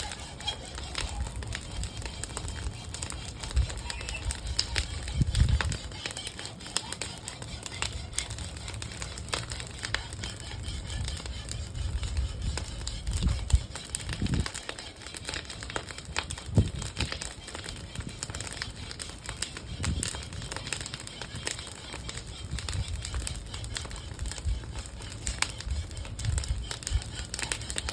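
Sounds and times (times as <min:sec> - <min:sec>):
low fire rumble: 0:00.0 - 0:06.0, 0:07.6 - 0:14.5, 0:22.1 - 0:27.9
bonfire crackling and popping: 0:00.0 - 0:27.9.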